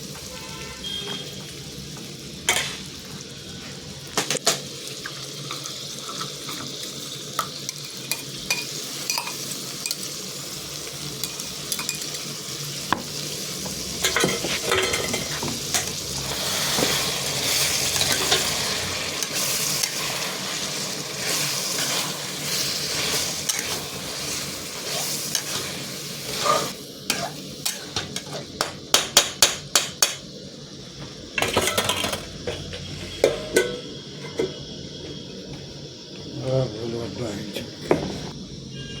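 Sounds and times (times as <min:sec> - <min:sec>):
curry sizzling in a pan: 0:00.0 - 0:36.4
spoon scraping a pan: 0:14.0 - 0:28.7, 0:31.4 - 0:34.6.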